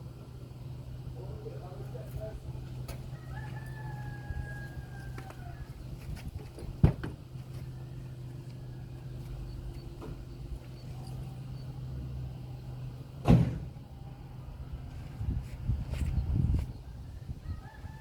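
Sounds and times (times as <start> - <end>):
car engine idling: 0.0 - 15.0
car doors shutting: 9.9 - 10.4, 13.2 - 13.8.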